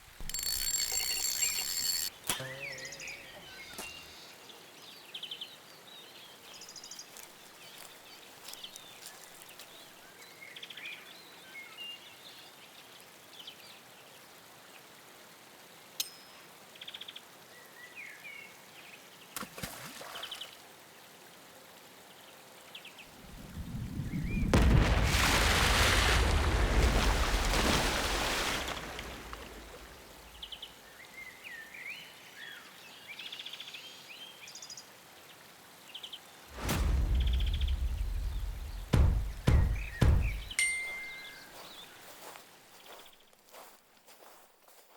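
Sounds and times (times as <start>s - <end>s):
loud rushing noise: 36.5s - 40.5s.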